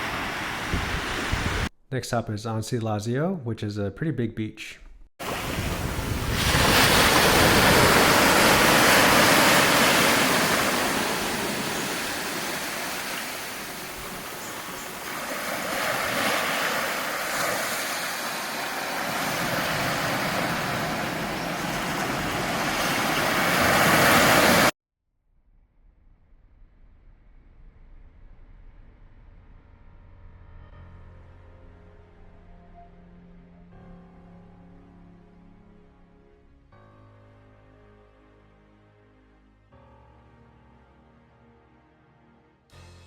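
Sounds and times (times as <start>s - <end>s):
surf breaking on a beach: 0.0s - 1.7s, 5.2s - 24.8s.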